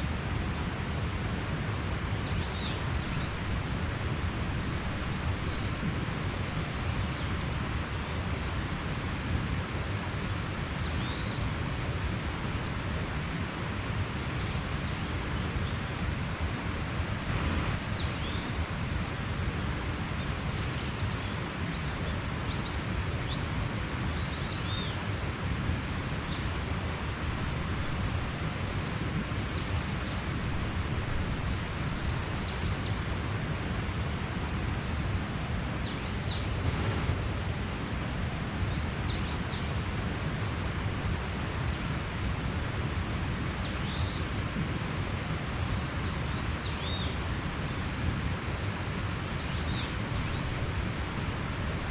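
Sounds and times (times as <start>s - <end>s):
mountain stream running: 0.0s - 51.9s
small birds chirping: 26.2s - 40.8s.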